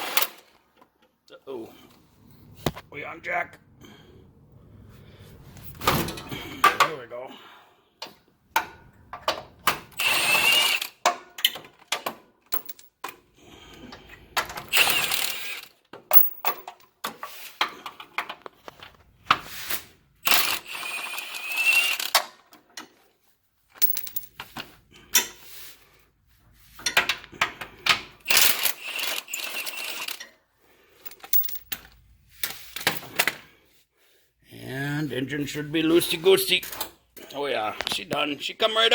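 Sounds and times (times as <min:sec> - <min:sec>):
impact wrench whining and hammering: 0:08.0 - 0:23.0, 0:26.6 - 0:30.3.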